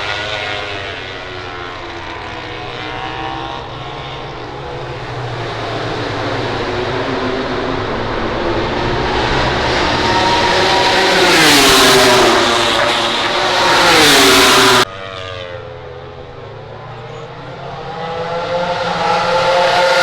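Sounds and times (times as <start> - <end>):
distant motorcycle engine revving: 0.0 - 16.2
racing motorcycle engine at high revs: 0.0 - 16.2, 17.1 - 20.0.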